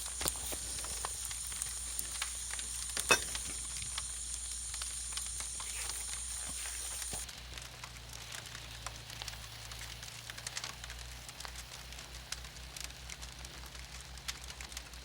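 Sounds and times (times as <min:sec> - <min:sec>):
food sizzling in a pan: 0:00.0 - 0:10.4
wood fire crackles: 0:00.0 - 0:15.0.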